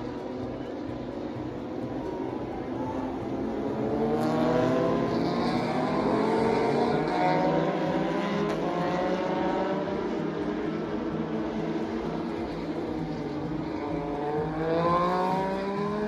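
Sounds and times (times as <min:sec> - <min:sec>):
racing motorcycles passing: 0:00.0 - 0:16.0.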